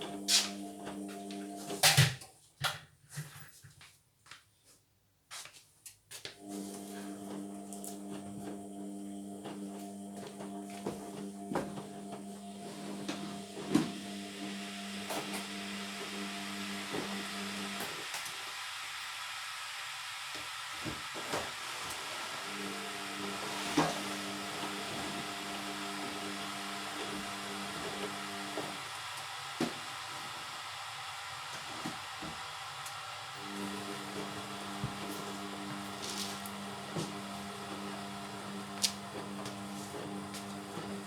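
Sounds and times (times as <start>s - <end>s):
washing machine drum motor hum: 6.4s - 18.1s, 20.1s - 41.0s.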